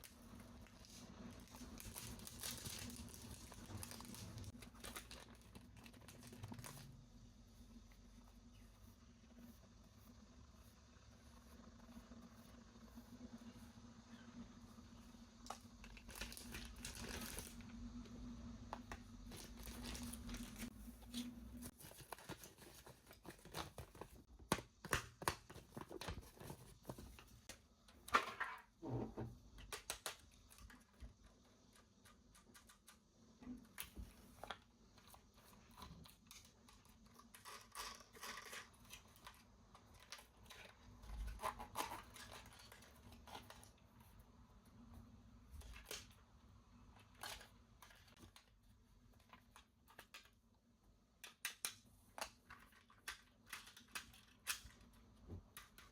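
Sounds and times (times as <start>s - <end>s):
faint steady hum: 0.0s - 55.9s
packaging crinkling and tearing: 0.3s - 6.9s, 15.4s - 17.6s, 19.3s - 24.2s.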